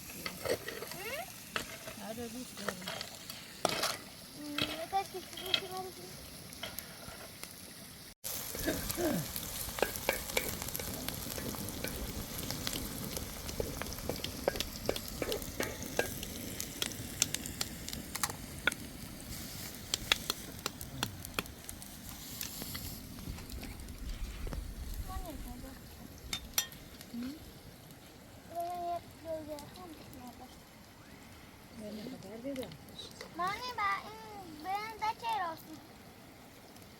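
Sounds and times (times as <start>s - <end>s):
food sizzling and crackling: 0.0s - 36.9s.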